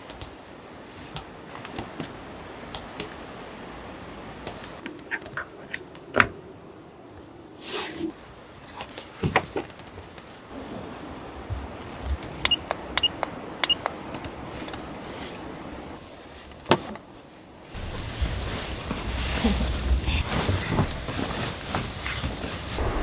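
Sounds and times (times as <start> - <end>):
wind rushing: 17.8 - 23.0.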